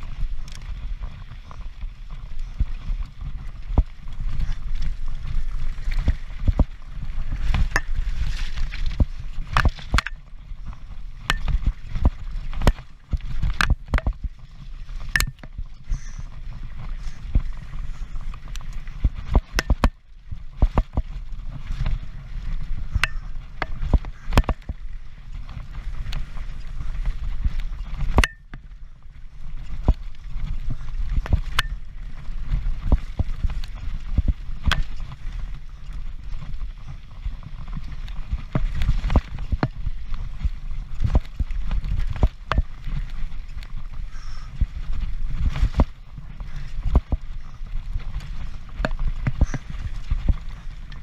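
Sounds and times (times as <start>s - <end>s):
bike knocks and rattles: 5.3s - 16.2s, 19.0s - 24.8s, 37.6s - 51.0s.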